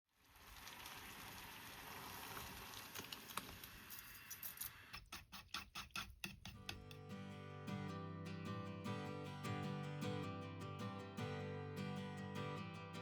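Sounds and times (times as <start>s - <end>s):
soft cooking hiss: 0.1s - 5.0s.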